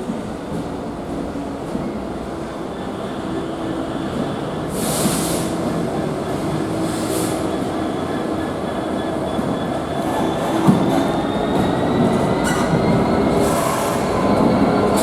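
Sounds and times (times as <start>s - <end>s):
faint high wheel squeal: 7.2s - 15.0s.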